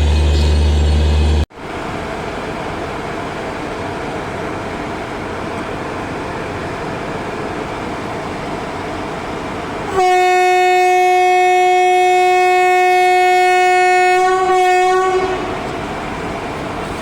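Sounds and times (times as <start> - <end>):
train rumble: 0.0 - 17.0
locomotive horn: 9.9 - 15.8.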